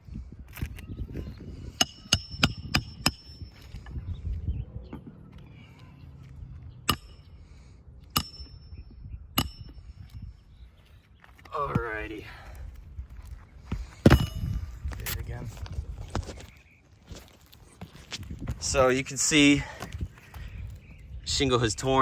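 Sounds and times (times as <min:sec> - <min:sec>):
hammer striking nails: 0:01.8 - 0:03.4, 0:06.9 - 0:07.3, 0:08.2 - 0:08.7, 0:09.4 - 0:09.8.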